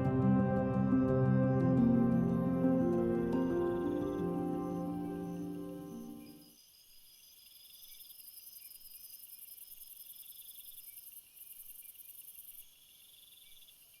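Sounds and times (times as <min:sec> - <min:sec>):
insects chirping and trilling: 0:03.1 - 0:14.0.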